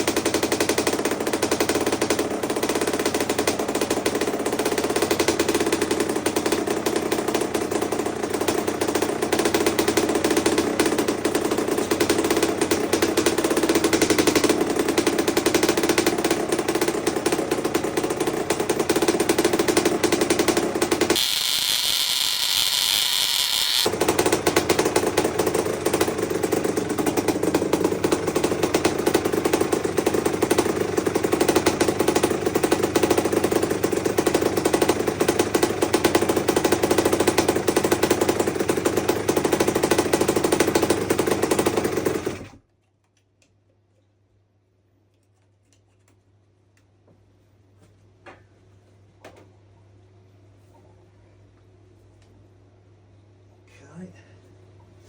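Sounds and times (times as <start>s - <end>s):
two-stroke engine running: 0.0s - 42.6s.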